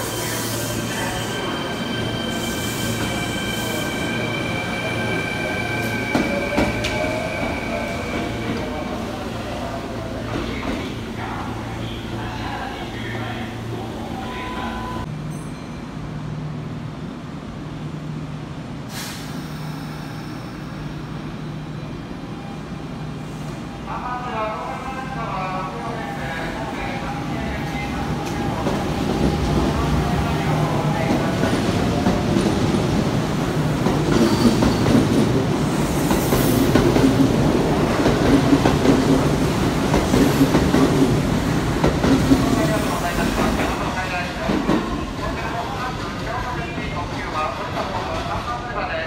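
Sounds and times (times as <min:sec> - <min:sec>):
air brakes hissing: 0:18.9 - 0:21.0.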